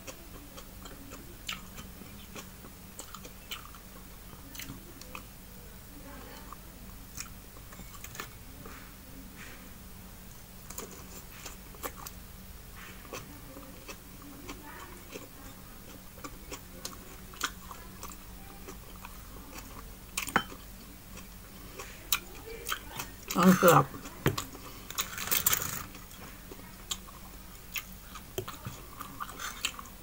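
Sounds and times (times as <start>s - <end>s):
chewing and lip smacks: 0.0s - 3.8s, 26.9s - 30.0s
faint hum: 0.0s - 30.0s.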